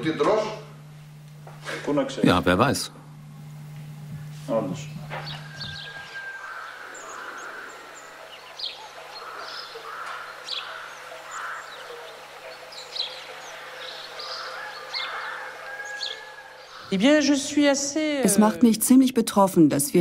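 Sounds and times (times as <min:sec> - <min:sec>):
faint low hum: 0:00.0 - 0:18.7
birds chirping: 0:02.4 - 0:17.9.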